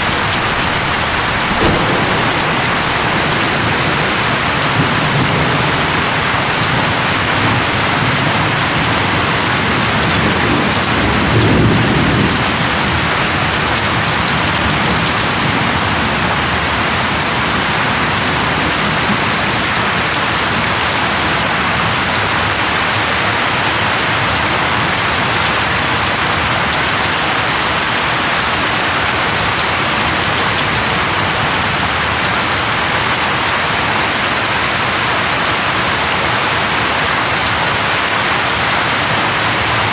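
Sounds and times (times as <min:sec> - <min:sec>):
thunder rumble: 0:00.0 - 0:15.9
steady rain falling: 0:00.0 - 0:39.9.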